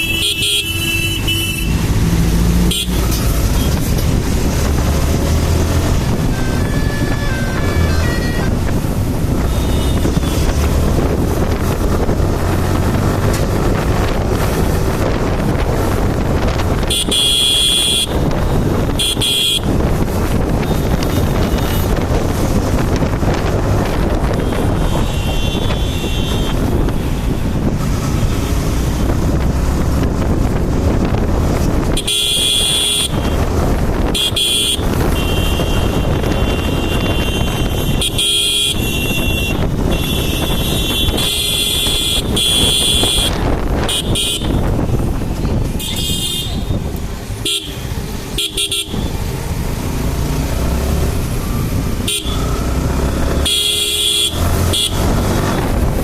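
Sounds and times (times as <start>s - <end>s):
vehicle horns honking: 0.0s - 1.9s, 2.6s - 4.0s, 9.3s - 10.7s, 16.7s - 22.1s, 24.0s - 27.3s, 31.8s - 49.4s, 52.0s - 55.9s
road and wind noise: 0.0s - 56.0s.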